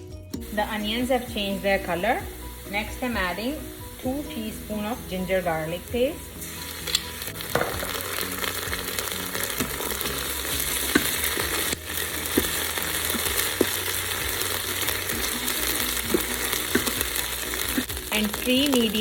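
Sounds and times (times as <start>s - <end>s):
onions sizzling in hot oil: 0.4s - 19.0s
stirring knocks: 9.4s - 18.2s.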